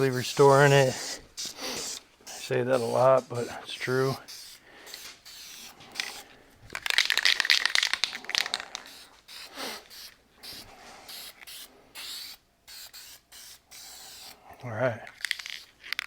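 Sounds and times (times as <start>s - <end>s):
tape rustling and scraping: 0.0s - 11.7s, 15.0s - 16.0s.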